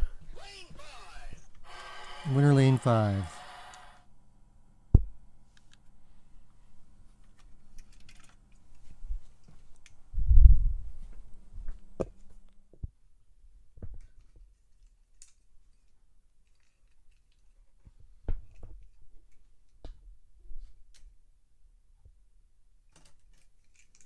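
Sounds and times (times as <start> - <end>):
toy cars clicking and knocking: 22.9 - 24.0.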